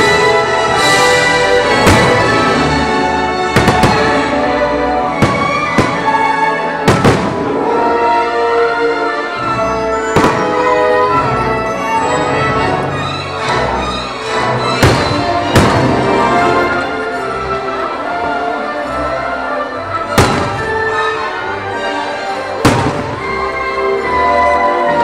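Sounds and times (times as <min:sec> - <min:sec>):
orchestral music: 0:00.0 - 0:25.0
firework bursts: 0:03.6 - 0:04.3.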